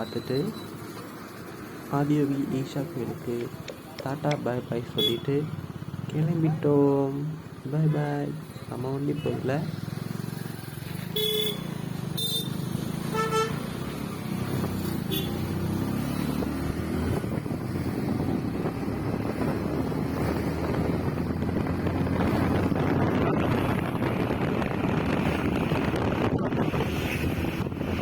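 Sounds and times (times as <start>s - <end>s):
traffic engines running: 0.0s - 28.0s
wind and road noise: 0.0s - 28.0s
vehicle horn toots: 5.0s - 5.3s, 11.1s - 13.6s, 15.1s - 15.4s.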